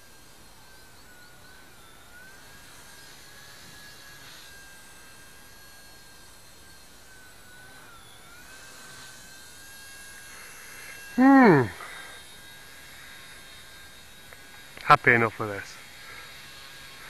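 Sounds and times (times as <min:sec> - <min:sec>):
rc helicopter motor whine: 0:00.0 - 0:17.0.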